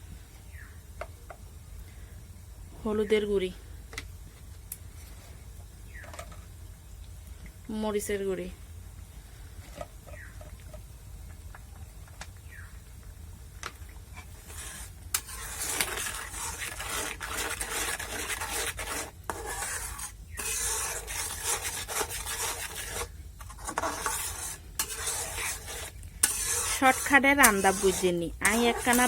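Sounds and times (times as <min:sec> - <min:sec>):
faint sizzle: 0:00.0 - 0:29.0
spoon scraping a pan: 0:14.1 - 0:29.0.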